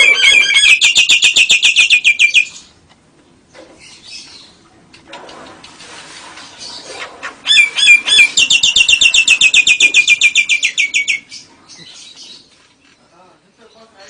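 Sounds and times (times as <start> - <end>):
bird singing with trill: 0.0 - 2.7, 7.5 - 12.5
faint bird chatter: 6.6 - 14.0.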